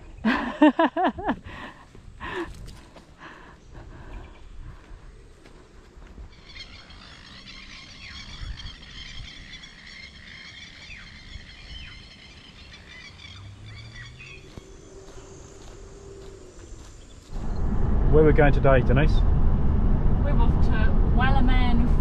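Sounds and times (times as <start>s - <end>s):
flock of birds chirping: 1.5s - 17.4s
low rumble: 13.6s - 22.0s.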